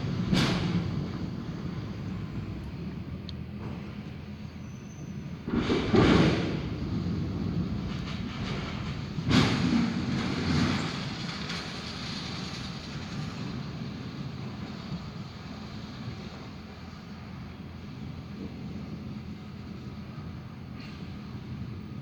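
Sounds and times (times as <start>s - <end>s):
thunder cracks: 0.0s - 2.5s, 5.5s - 13.6s
rolling thunder rumble: 0.0s - 4.5s, 5.1s - 22.0s.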